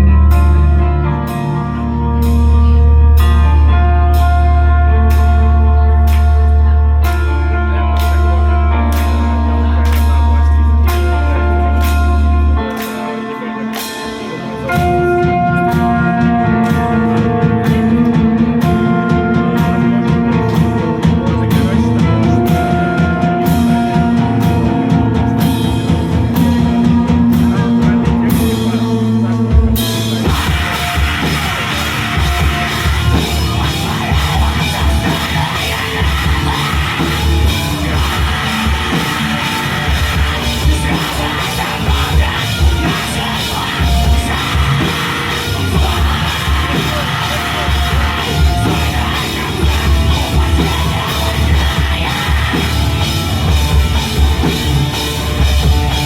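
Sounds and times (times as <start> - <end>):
rock band playing live: 0.0 - 56.0
drums crashing: 14.7 - 56.0.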